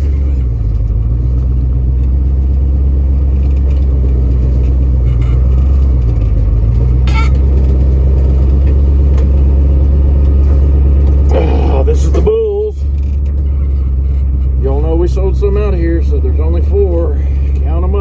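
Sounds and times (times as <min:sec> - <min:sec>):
truck engine and road rumble: 0:00.0 - 0:18.0
brief high squeak: 0:07.1 - 0:07.4.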